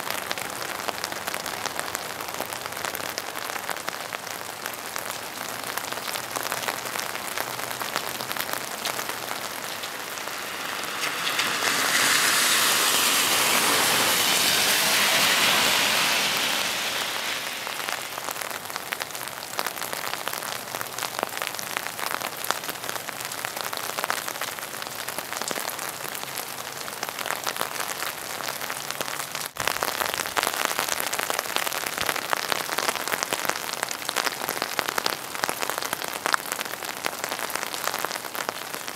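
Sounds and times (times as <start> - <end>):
steady rain: 0.0 - 38.9
rushing hiss: 9.1 - 18.3.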